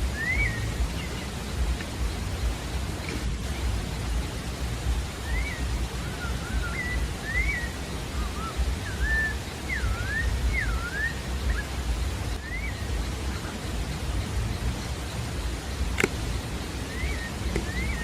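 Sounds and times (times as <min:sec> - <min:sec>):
bird singing whistled notes: 0:00.0 - 0:18.0
steady rushing background noise: 0:00.0 - 0:18.0.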